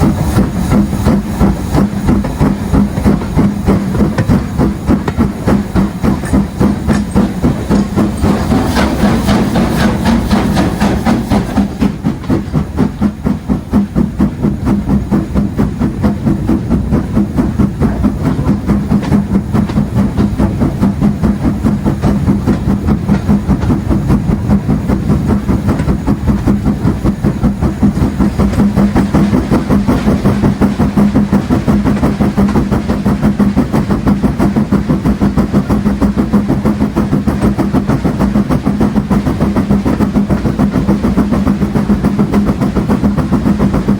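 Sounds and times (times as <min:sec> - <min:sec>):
running gear and rail noise: 0:00.0 - 0:43.9
steam locomotive exhaust beats: 0:00.0 - 0:43.9.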